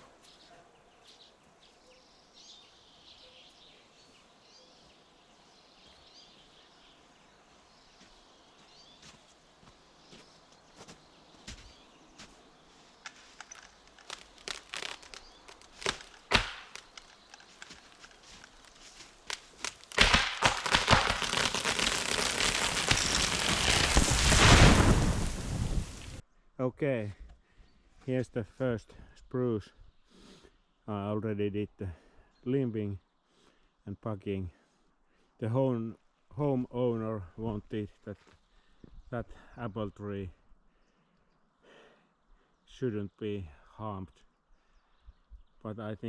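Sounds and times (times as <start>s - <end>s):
tree crashing through branches: 12.9s - 26.2s
wood cracking and snapping: 12.9s - 26.2s.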